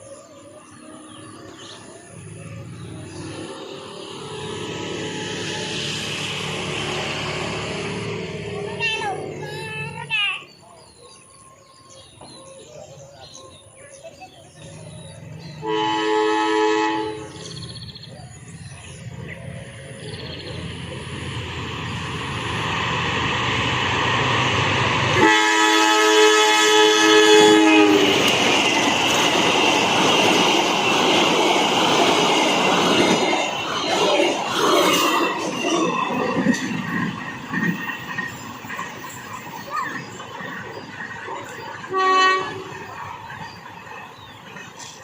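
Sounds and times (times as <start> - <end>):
rumble of passing train: 0.0 - 45.0
train two-tone horn: 15.5 - 17.6, 25.1 - 28.4, 41.8 - 42.9.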